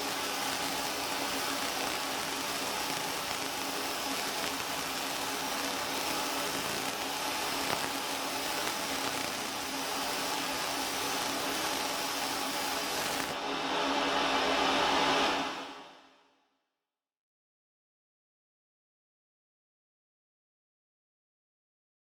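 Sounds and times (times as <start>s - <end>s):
laser engraving machine whirring: 0.0s - 13.4s.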